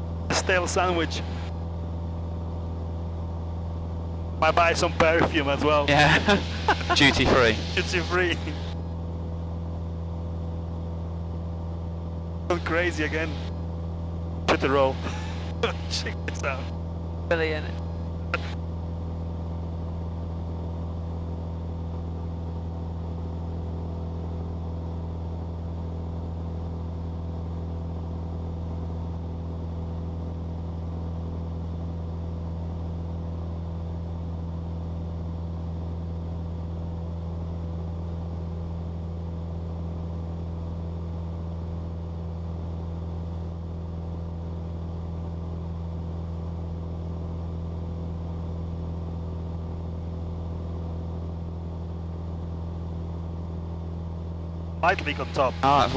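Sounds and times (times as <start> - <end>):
propeller plane engine droning: 0.0 - 55.9.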